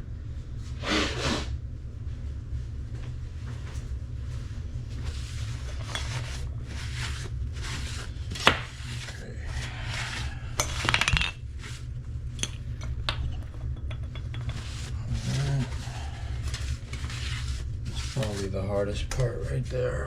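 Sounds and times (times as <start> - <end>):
steady low hum: 0.0 - 20.0
metal tools scraping and rubbing: 5.4 - 8.1, 12.4 - 18.5.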